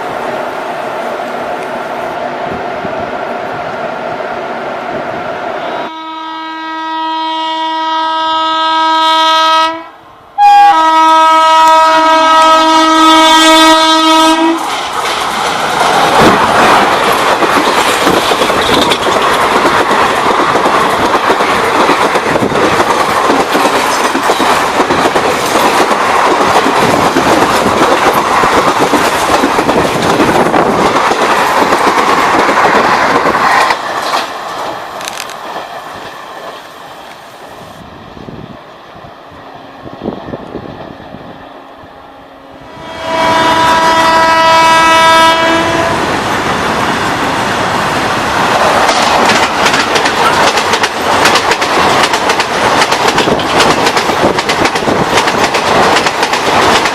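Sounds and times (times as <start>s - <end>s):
electric locomotive horn blasts: 5.6s - 14.6s, 40.6s - 46.2s
train wheels rumbling on rails: 11.9s - 41.6s, 42.6s - 56.9s.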